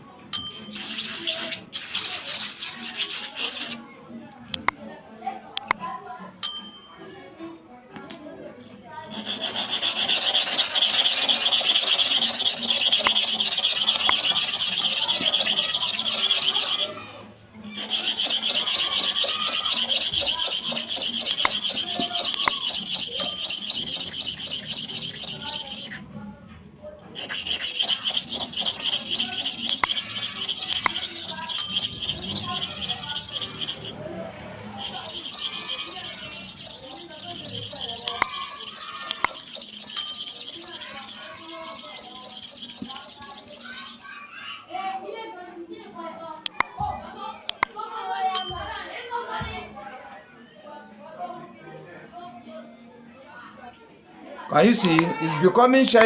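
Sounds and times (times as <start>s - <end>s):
blade scraping on abrasive surface: 0.6s - 3.8s, 9.0s - 17.0s, 17.7s - 26.1s, 27.2s - 44.1s.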